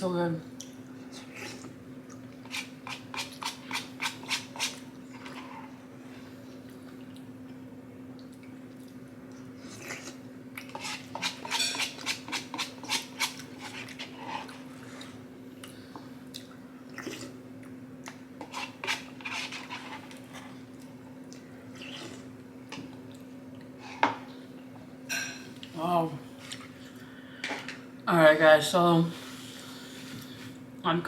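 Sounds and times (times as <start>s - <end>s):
chewing and mouth smacks: 6.7s - 10.7s, 13.4s - 18.2s.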